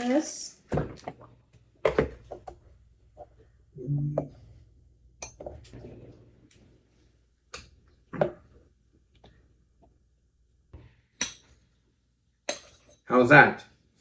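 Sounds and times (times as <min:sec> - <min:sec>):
utensils and dishes clinking: 0:12.5 - 0:13.1.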